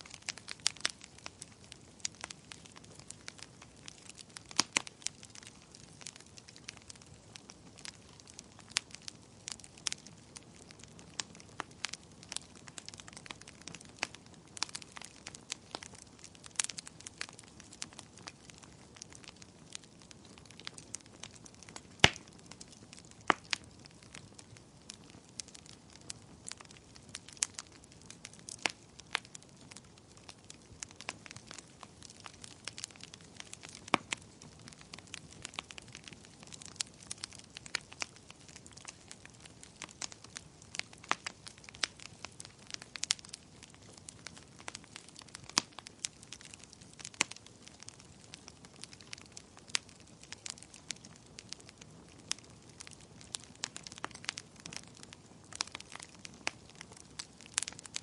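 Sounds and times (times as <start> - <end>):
fireplace fire crackling: 0.0 - 58.0.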